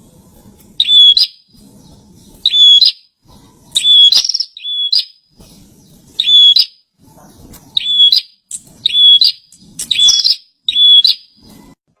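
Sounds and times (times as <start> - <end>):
bird singing whistled phrases: 0.8 - 1.4, 3.8 - 5.2, 6.2 - 6.8, 7.8 - 11.4.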